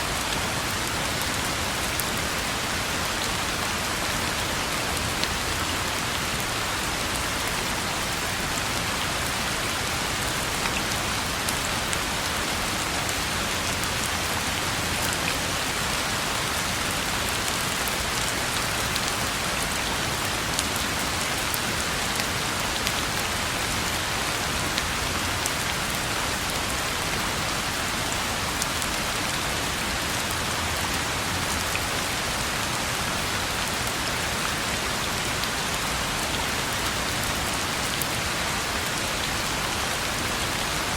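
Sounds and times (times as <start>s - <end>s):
rain falling on a road: 0.0s - 40.9s.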